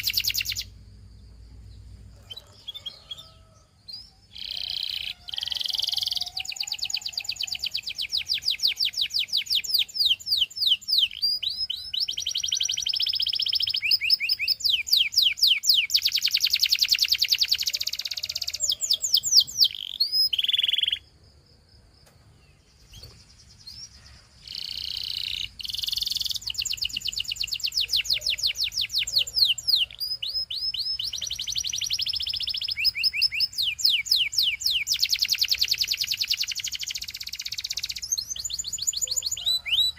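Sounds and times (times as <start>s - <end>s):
canary singing trills: 0.0s - 21.1s, 22.3s - 39.9s.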